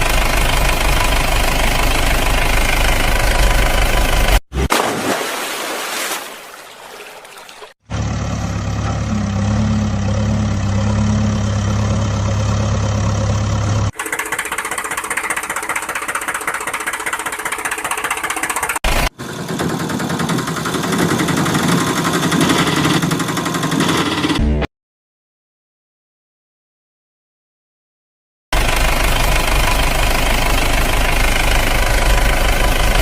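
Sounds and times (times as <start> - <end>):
vehicle engine running: 0.0 - 4.4, 7.9 - 24.7, 28.6 - 33.0.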